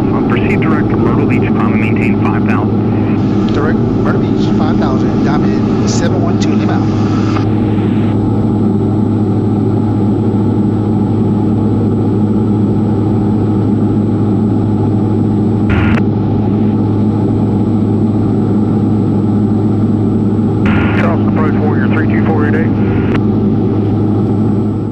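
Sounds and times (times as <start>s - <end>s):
aircraft engine and propeller droning: 0.0s - 24.9s
burst of noise: 2.7s - 8.2s, 15.7s - 16.8s, 20.7s - 21.4s.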